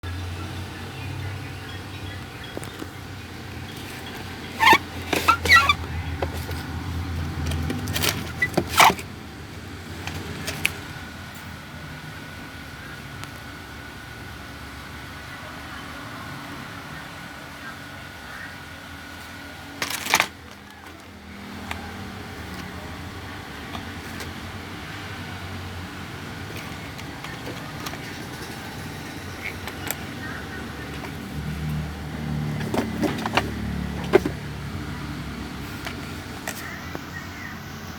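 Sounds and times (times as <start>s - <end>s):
toy car electric motor whirring: 3.6s - 9.1s
toy car motor humming: 19.8s - 34.8s.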